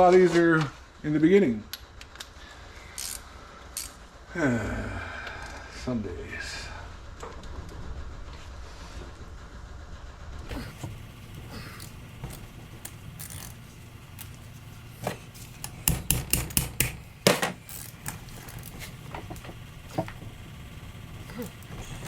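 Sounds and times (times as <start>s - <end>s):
hammer tapping on metal: 15.0s - 17.6s.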